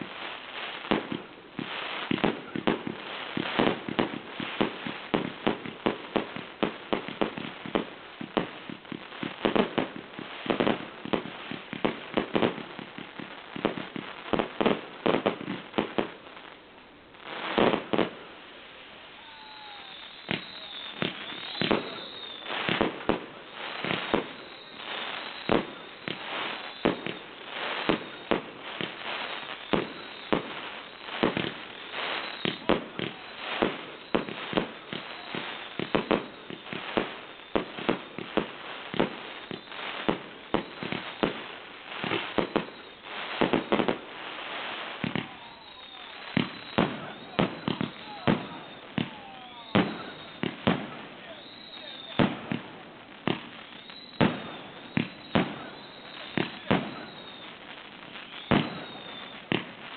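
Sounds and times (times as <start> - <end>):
fireworks bangs: 0.0 - 59.9
fireworks whistles: 0.0 - 59.9.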